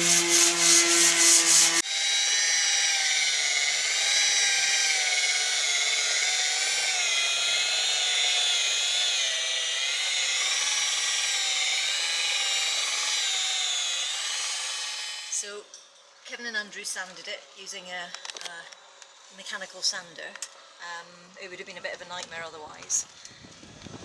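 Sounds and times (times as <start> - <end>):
power tool motor whine: 0.0 - 15.4.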